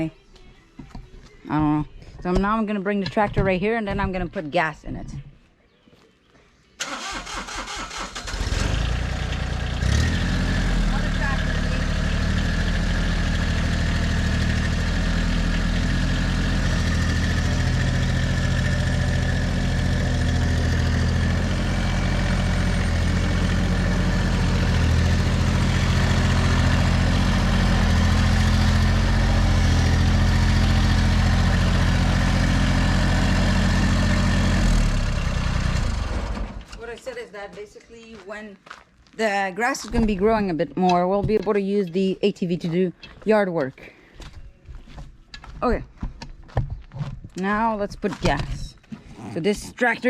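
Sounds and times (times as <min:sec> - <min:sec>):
diesel tractor engine running: 0:06.8 - 0:36.8.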